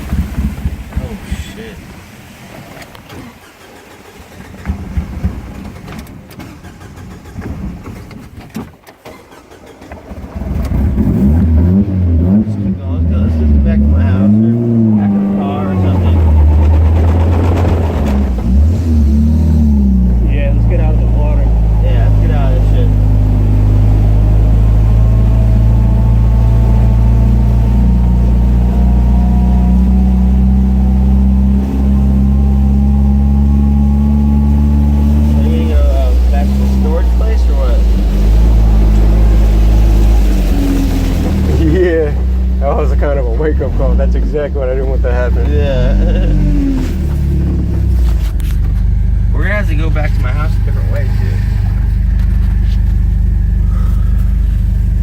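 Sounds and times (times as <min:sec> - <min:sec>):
engine knocks: 0:00.0 - 0:12.4, 0:13.2 - 0:55.0
car engine rumbling: 0:00.0 - 0:55.0
faint drifting whine: 0:12.6 - 0:55.0.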